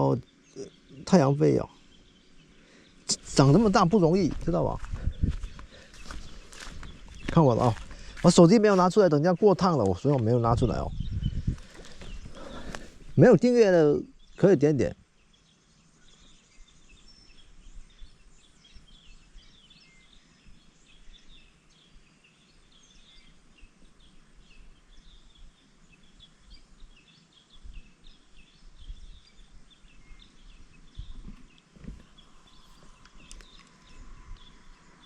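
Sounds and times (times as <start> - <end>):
small birds chirping: 0.0 - 35.0
soft low thumps: 3.1 - 9.0, 10.5 - 13.2.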